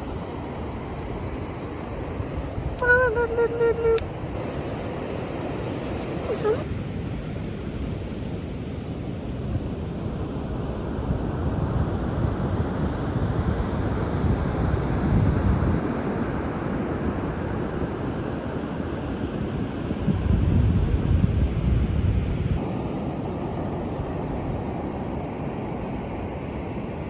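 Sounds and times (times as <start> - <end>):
wind buffeting microphone: 6.3 - 18.0, 19.5 - 22.6.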